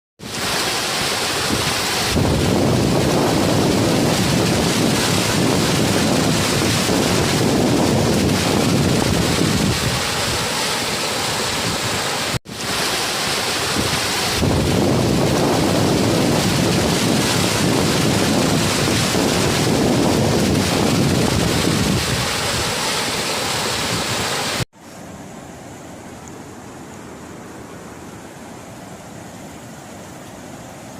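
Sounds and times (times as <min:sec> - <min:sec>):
floodwater rushing: 0:00.2 - 0:24.7
wind buffeting microphone: 0:01.5 - 0:10.6, 0:13.7 - 0:22.8.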